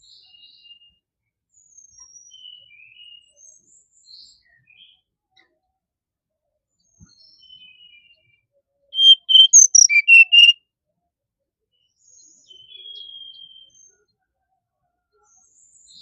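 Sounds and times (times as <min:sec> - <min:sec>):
bird singing whistled phrase: 0:09.0 - 0:10.6
long faint whistle: 0:09.0 - 0:10.6
soft thin whistles: 0:09.0 - 0:10.6.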